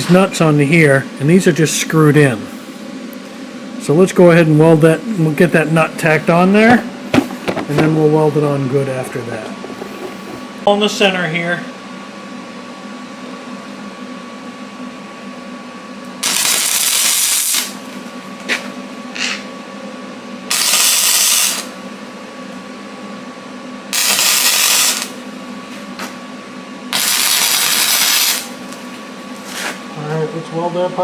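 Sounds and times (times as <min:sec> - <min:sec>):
steady hum: 0:00.0 - 0:31.0
hissing welding arc: 0:16.2 - 0:18.0, 0:20.5 - 0:21.8, 0:23.9 - 0:25.2, 0:26.9 - 0:28.9.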